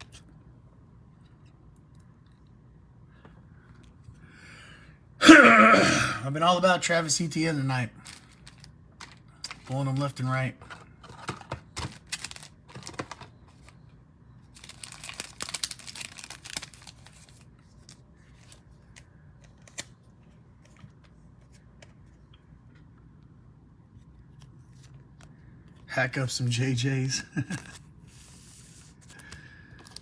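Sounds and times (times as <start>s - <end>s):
wrapper crinkling and tearing: 8.0s - 9.8s, 11.8s - 13.2s, 14.5s - 18.0s
cards being shuffled: 27.6s - 30.0s.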